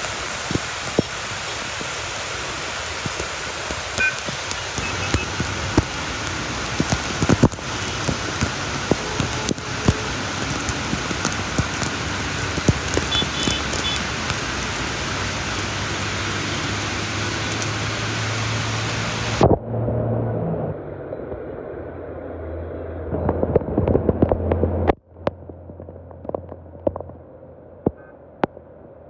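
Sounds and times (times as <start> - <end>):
steady rain falling: 0.0 - 19.5.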